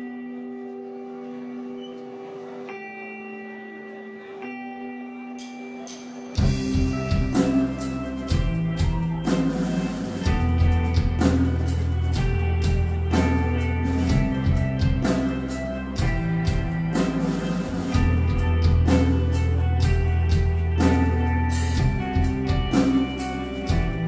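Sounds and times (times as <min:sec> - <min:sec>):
electric guitars: 0:00.0 - 0:24.0
bass guitar: 0:02.7 - 0:24.0
drum kit beat: 0:05.4 - 0:24.0.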